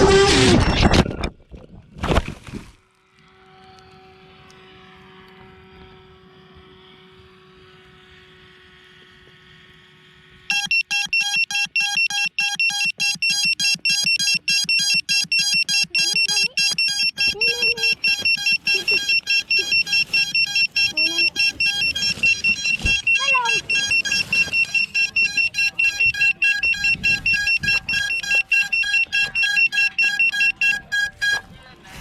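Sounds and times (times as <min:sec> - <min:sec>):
rapid electronic alarm beeping: 0:10.5 - 0:31.7.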